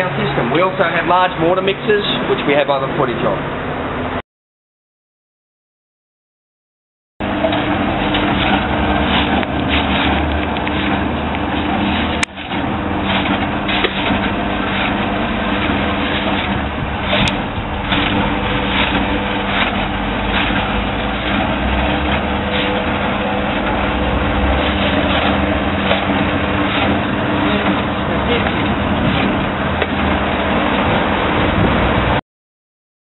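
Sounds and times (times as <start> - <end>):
small petrol engine running: 7.2 - 32.2.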